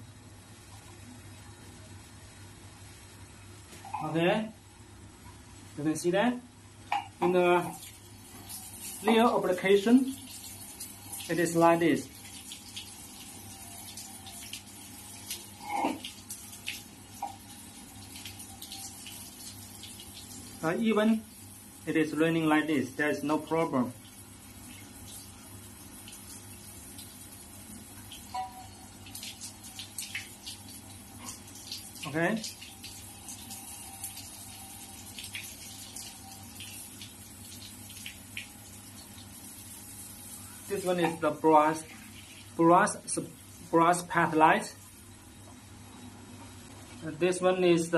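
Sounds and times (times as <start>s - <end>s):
water falling like rain: 7.4s - 21.8s, 24.4s - 41.2s.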